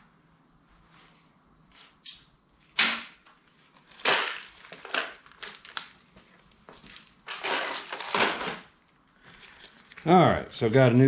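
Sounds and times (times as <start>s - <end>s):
packaging crinkling: 3.6s - 10.1s.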